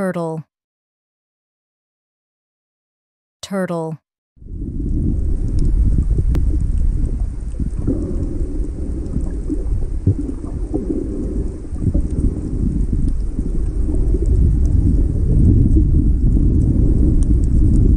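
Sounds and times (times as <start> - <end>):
faint underwater crackles: 4.4 - 17.9
underwater rumble of moving water: 4.4 - 17.9.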